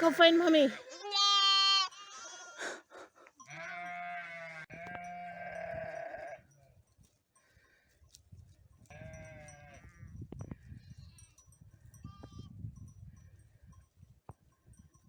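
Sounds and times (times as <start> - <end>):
sheep bleating: 0.8 - 2.7, 3.4 - 6.4.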